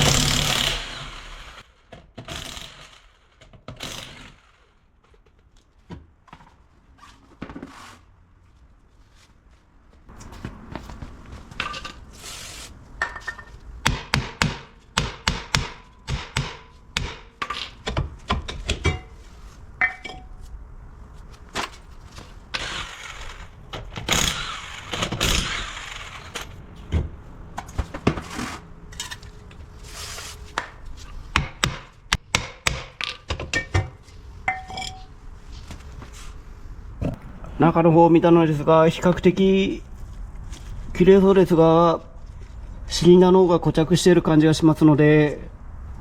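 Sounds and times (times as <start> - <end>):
metal tools clanking: 19.8 - 20.4, 34.5 - 35.1.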